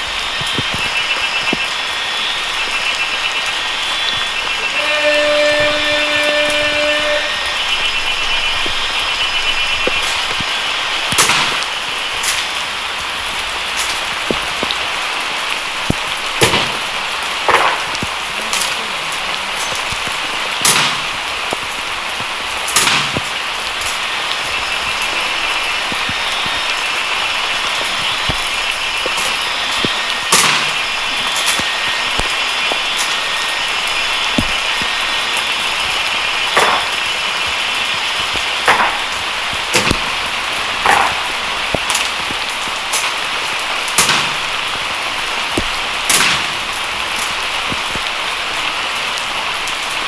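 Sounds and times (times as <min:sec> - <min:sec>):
heavy rain falling: 0:00.0 - 0:50.0
rifles knocking on ground: 0:17.5 - 0:18.1, 0:36.6 - 0:36.9, 0:38.7 - 0:39.1, 0:40.8 - 0:42.0.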